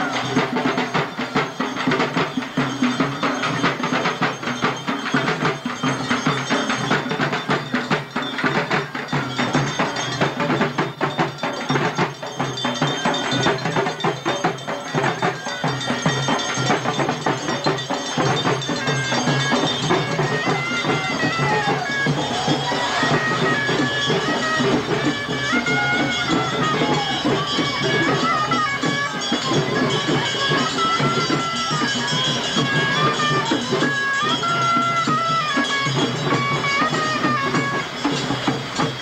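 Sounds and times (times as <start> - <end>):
fast dense drumming: 0.0 - 39.0
high reed pipe melody: 15.6 - 38.9.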